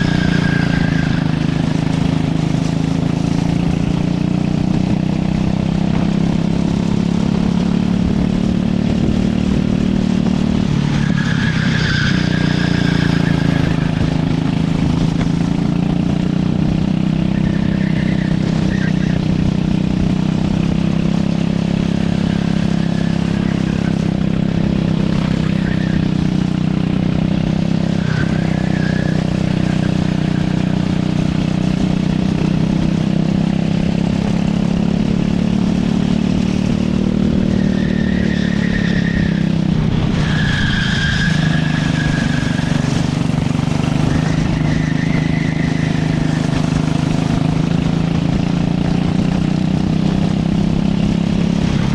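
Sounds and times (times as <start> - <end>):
high squeals: 0.0 - 2.2, 10.7 - 14.5, 17.2 - 19.4, 22.0 - 31.2, 37.3 - 47.2
racing kart engine running hard: 0.0 - 51.9.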